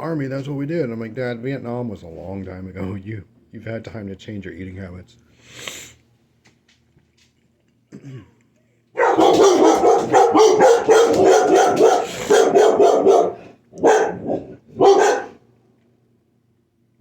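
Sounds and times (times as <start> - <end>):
dogs barking: 9.0 - 15.4.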